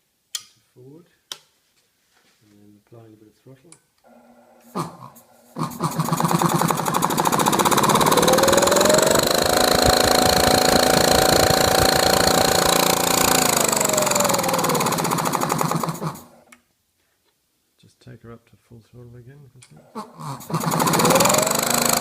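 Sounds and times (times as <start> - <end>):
air compressor pumping and whining: 4.6 - 16.5, 19.9 - 22.0.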